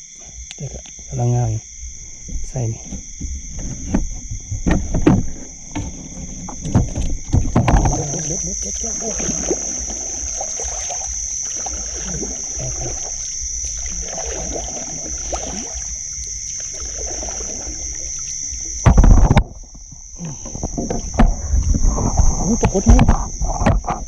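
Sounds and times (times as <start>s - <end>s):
high insect chorus: 0.0s - 24.0s
water sloshing and splashing: 1.8s - 24.0s
loud water rush: 8.8s - 18.1s.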